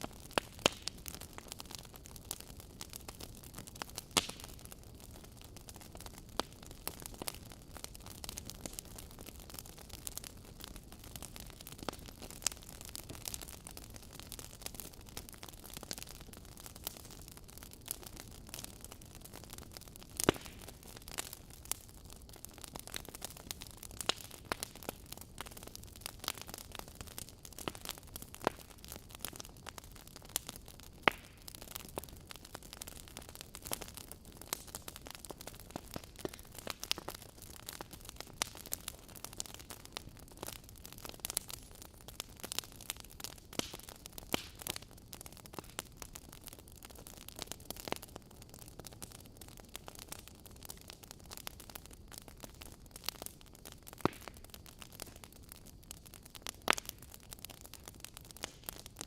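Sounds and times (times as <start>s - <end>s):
wood fire crackling: 0.0s - 59.0s
soft fire hiss: 17.9s - 46.2s.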